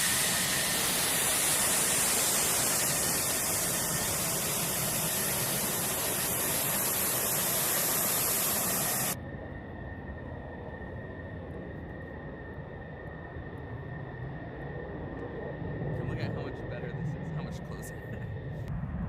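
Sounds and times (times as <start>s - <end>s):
jet engine rushing hiss: 0.0s - 9.2s
dull steady hum: 0.0s - 19.0s.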